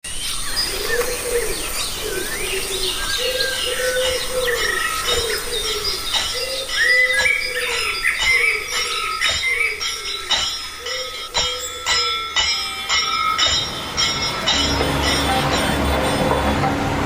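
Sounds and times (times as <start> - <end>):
birds chirping and twittering: 0.0 - 17.0
low cooing call: 0.6 - 8.7.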